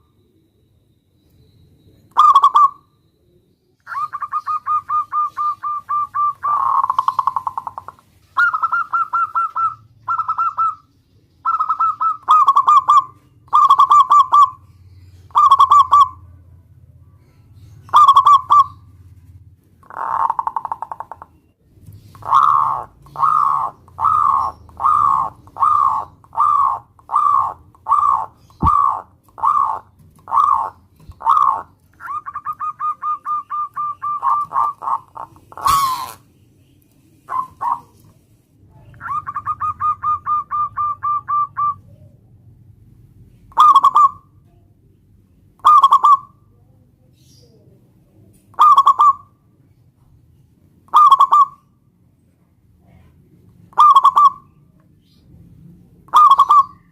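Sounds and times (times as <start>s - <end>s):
dove cooing: 2.1s - 2.9s, 3.9s - 14.6s, 15.3s - 16.3s, 17.8s - 19.0s, 19.8s - 21.4s, 22.0s - 36.2s, 37.2s - 42.3s, 43.5s - 44.3s, 45.6s - 46.4s, 48.5s - 49.3s, 50.9s - 51.6s, 53.7s - 54.5s, 56.1s - 56.9s.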